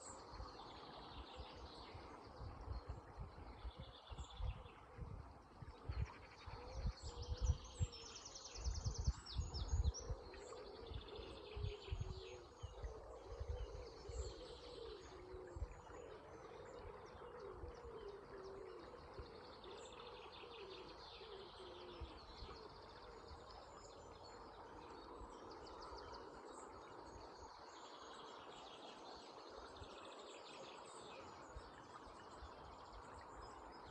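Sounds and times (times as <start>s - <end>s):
songbirds singing and chirping: 0.0s - 33.9s.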